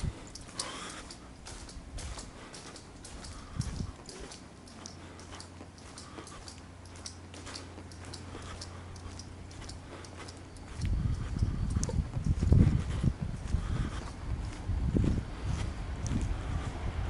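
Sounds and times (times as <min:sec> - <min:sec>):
faint high ticks: 0:00.0 - 0:12.6
train low hum: 0:00.0 - 0:17.0.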